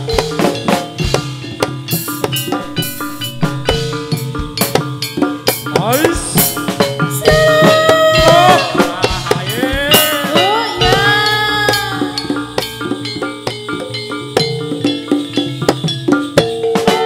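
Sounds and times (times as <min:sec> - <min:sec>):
drums and percussion rhythm: 0:00.0 - 0:17.0
sliding melody instrument: 0:01.9 - 0:15.3.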